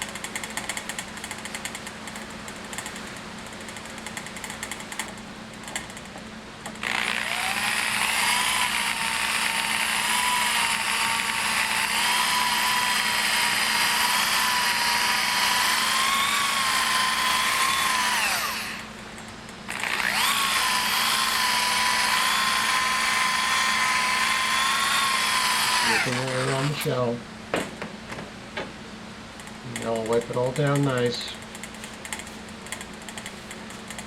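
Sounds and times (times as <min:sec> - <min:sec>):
power tool motor whine: 0:06.8 - 0:18.9, 0:19.7 - 0:26.9.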